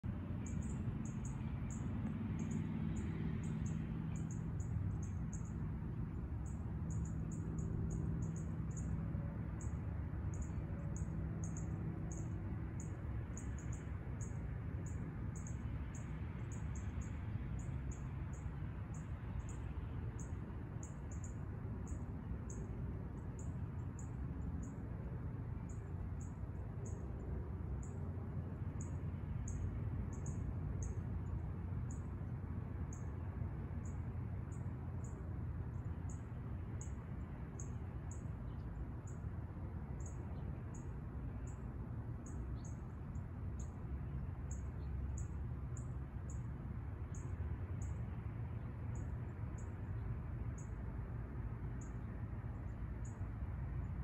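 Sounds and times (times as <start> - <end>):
low background noise: 0.0 - 54.0
small bird chirping: 0.4 - 5.6, 42.2 - 43.0.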